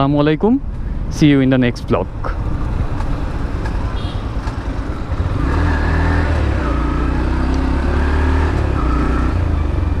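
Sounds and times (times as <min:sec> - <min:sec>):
road and wind noise: 0:00.0 - 0:10.0
motorcycle engine drone: 0:02.1 - 0:10.0.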